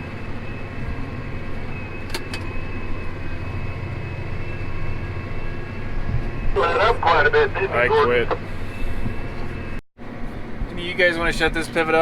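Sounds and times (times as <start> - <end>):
thin steady whine: 6.6 - 8.8
tractor engine droning: 6.6 - 9.8.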